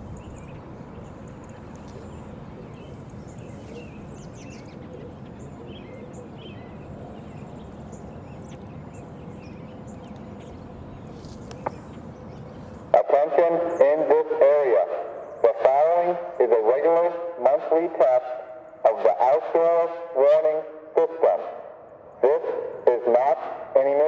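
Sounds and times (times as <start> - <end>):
small birds chirping: 0.0 - 12.9
low outdoor rumble: 0.0 - 19.0.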